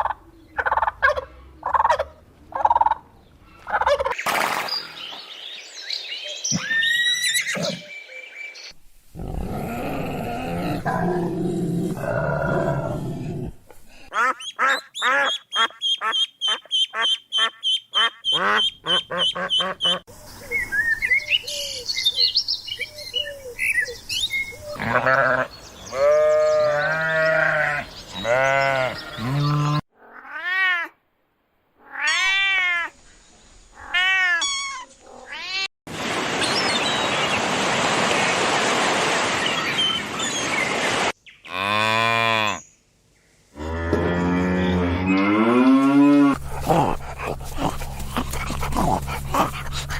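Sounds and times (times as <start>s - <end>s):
farm and pet animal calls: 0.0s - 3.0s, 14.1s - 20.0s, 24.6s - 30.9s, 33.8s - 35.7s
cow lowing: 9.1s - 13.7s, 43.6s - 49.9s
duck quacking: 14.1s - 20.0s.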